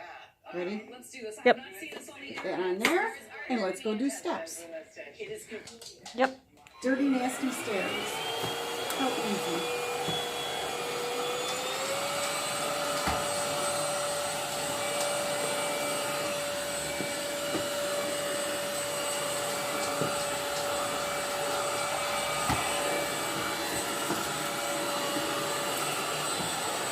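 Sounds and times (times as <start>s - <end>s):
cordless vacuum running: 6.8s - 26.9s.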